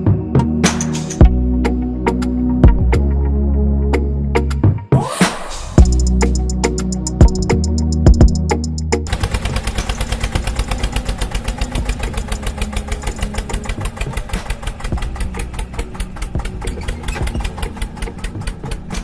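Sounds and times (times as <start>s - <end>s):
small motor knocking: 9.1s - 19.0s.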